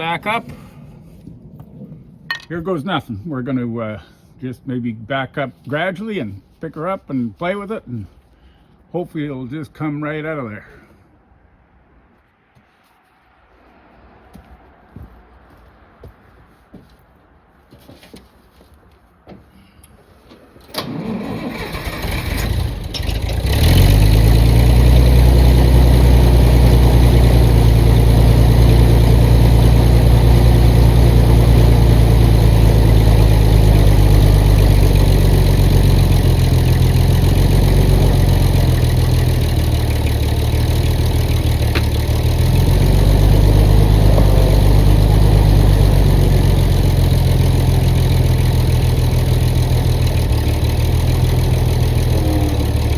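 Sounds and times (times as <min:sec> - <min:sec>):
heavy machine engine starting and running: 0:20.6 - 0:52.9.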